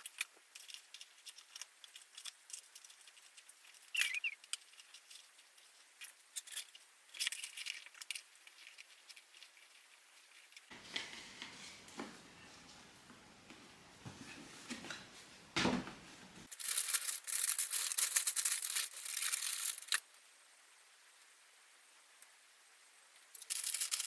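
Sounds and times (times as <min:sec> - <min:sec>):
crinkling tearing rustle: 0:00.0 - 0:11.2, 0:16.4 - 0:20.1, 0:23.3 - 0:24.0.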